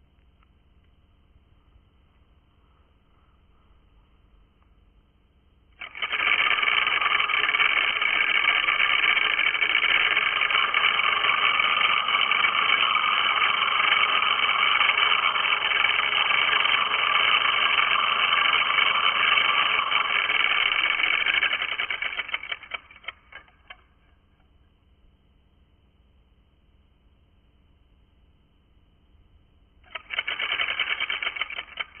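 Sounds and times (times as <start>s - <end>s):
tattoo machine buzzing: 5.8s - 23.5s, 29.9s - 32.0s.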